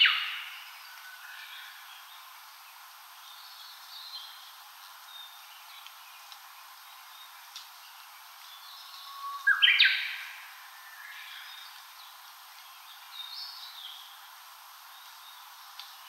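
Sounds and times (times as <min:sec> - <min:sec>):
forest birds calling faintly: 0:00.0 - 0:16.0
nearby bird singing loudly: 0:08.5 - 0:11.7.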